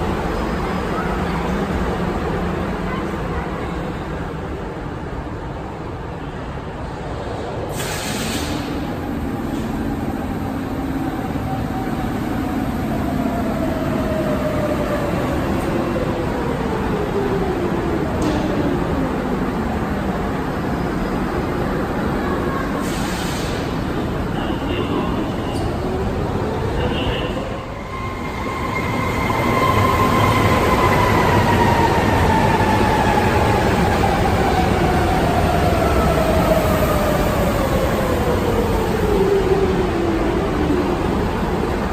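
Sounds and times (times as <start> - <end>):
subway train rumbling on track: 0.0 - 41.9
short hiss: 7.7 - 8.7.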